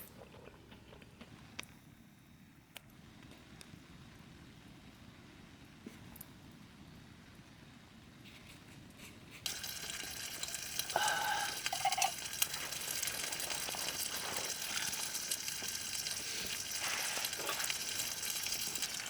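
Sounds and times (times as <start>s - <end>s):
food sizzling in a pan: 9.5s - 19.0s.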